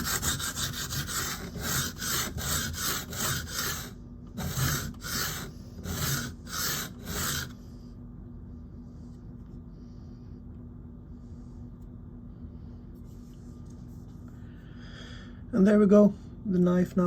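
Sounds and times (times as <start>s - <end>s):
knife scraping on whetstone: 0.0s - 7.6s.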